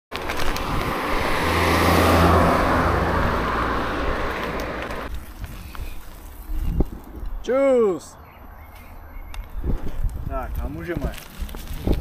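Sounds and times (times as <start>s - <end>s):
road vehicle passing: 0.2s - 5.1s.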